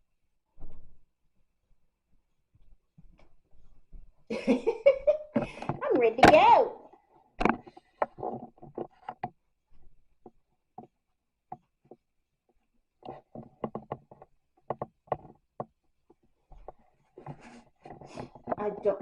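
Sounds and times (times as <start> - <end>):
short knocks and taps: 13.0 - 18.6.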